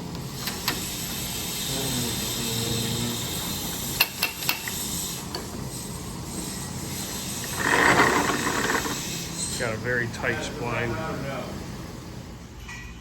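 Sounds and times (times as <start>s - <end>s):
low steady shop hum: 0.0s - 13.0s
shop press forcing metal part: 7.4s - 9.0s.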